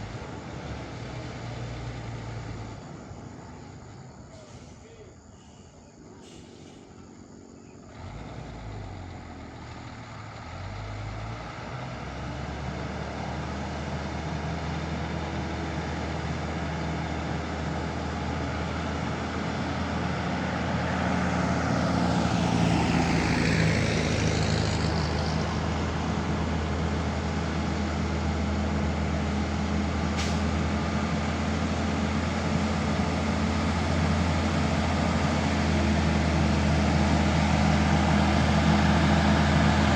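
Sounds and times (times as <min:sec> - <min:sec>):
heavy truck engine: 0:00.0 - 0:39.9
air hiss: 0:06.2 - 0:07.0.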